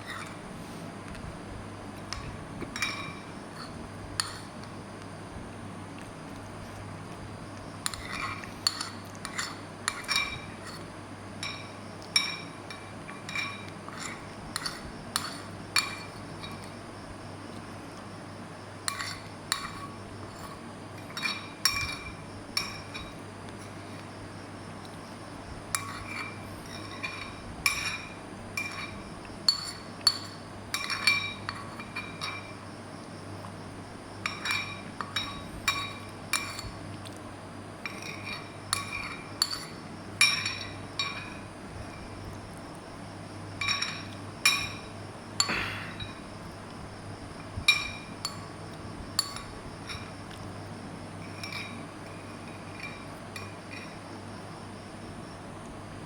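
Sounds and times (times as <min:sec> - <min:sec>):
steady low hum: 0:00.0 - 0:56.0
utensil clinking against bowl: 0:02.0 - 0:04.7, 0:07.8 - 0:16.8, 0:18.8 - 0:23.8, 0:25.7 - 0:32.7, 0:34.2 - 0:36.8, 0:37.8 - 0:42.1, 0:43.6 - 0:46.2, 0:47.6 - 0:48.5, 0:49.2 - 0:50.2, 0:51.2 - 0:54.0.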